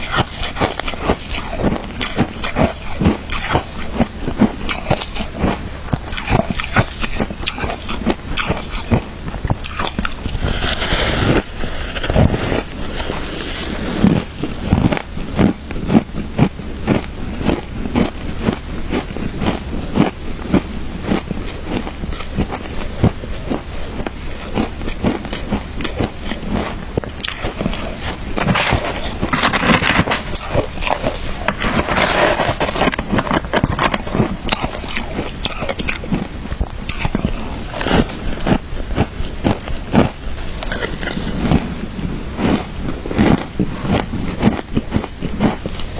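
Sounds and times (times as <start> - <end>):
chewing crunchy ice: 0.0 - 45.9.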